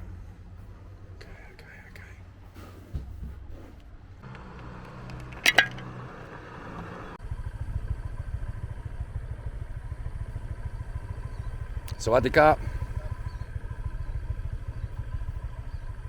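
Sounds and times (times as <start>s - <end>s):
sharp clatter: 4.2s - 6.5s
small engine running: 4.2s - 16.0s.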